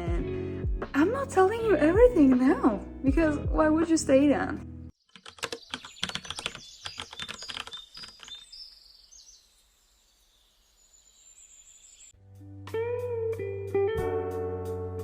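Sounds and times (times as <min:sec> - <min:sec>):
guitar music: 0:12.2 - 0:15.0.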